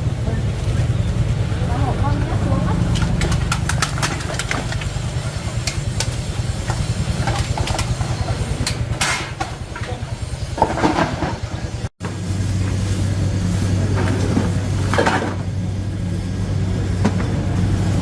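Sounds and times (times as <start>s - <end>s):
low mechanical rumble: 0.0s - 18.0s
sharp clicks and knocks: 2.8s - 10.0s.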